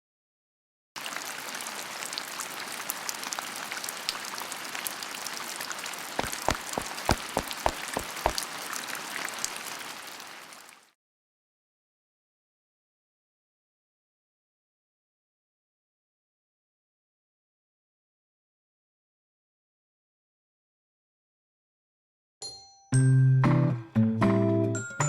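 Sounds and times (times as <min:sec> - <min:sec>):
rain patter: 0:01.0 - 0:11.0.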